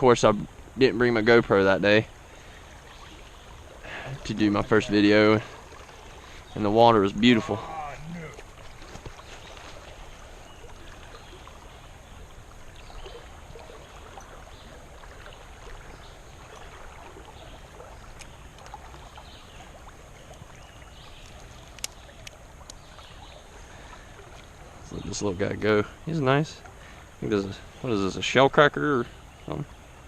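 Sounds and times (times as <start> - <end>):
creek water flowing: 0.0 - 30.0
small sharp clicks: 21.2 - 22.8.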